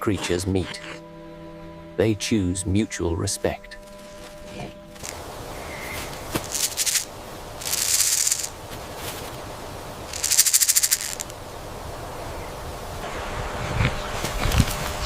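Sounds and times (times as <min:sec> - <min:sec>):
porcupine quills rattling: 0:03.8 - 0:09.4, 0:10.0 - 0:11.4.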